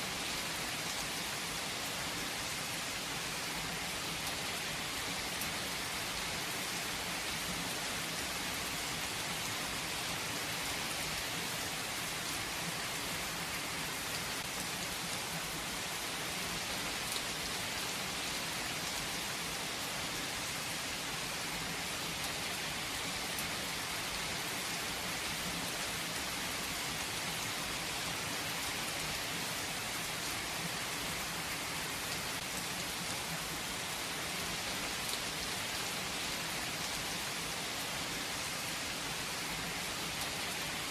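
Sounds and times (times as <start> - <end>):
rain pattering on a surface: 0.1 - 40.9.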